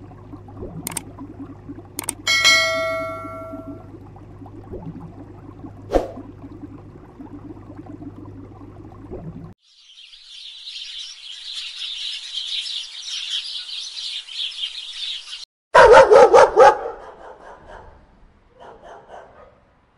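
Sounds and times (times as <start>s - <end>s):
low steady hum: 0.0s - 9.6s
sparrows chirping: 9.6s - 15.4s
dog barking: 15.7s - 19.7s.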